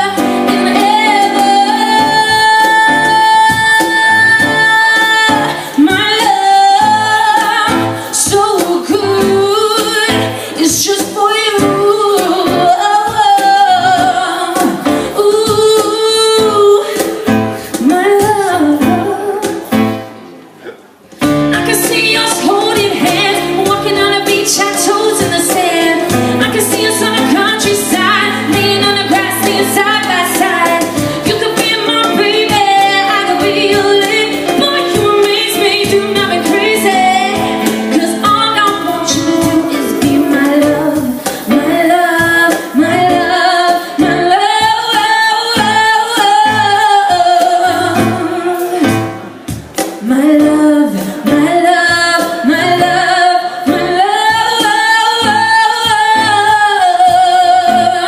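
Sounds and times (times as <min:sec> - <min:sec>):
woman singing with vibrato: 0:00.0 - 0:20.3, 0:21.2 - 0:58.0.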